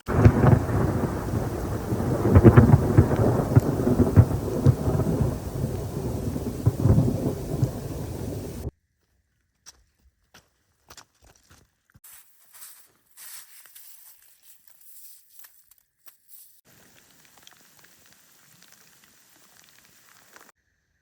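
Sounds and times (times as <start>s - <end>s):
loud low rumbling: 0.0s - 8.7s.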